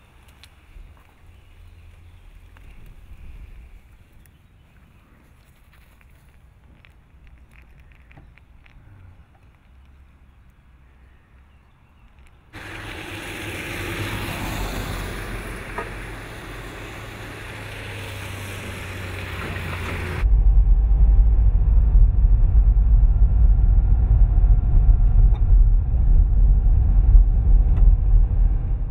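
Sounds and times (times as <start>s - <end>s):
heavy rain or hail rushing: 12.6s - 20.2s
deep low rumble: 20.0s - 28.9s.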